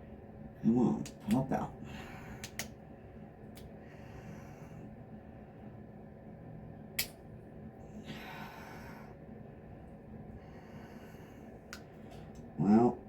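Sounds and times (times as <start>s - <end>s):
person breathing out: 8.0s - 9.2s.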